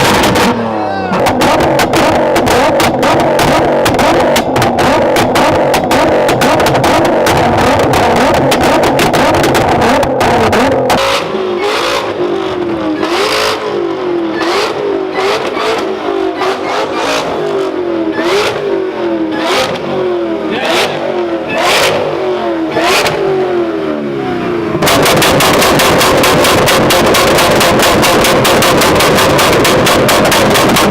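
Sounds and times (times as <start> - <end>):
exhaust cracks: 0.0 - 23.8, 24.4 - 30.9
car engine revving: 0.0 - 30.9.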